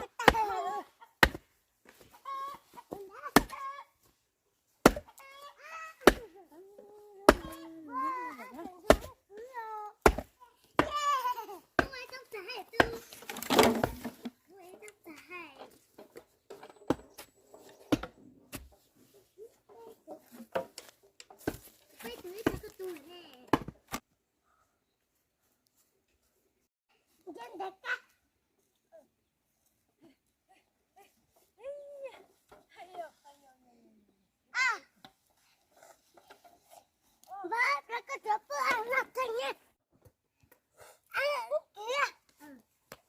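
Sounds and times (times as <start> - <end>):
sharp chopping strikes: 1.2 - 1.4, 3.3 - 3.6, 4.8 - 5.1, 6.0 - 6.2, 8.9 - 9.1, 10.0 - 11.0
sharp knocks and thuds: 10.0 - 11.0, 23.5 - 24.0.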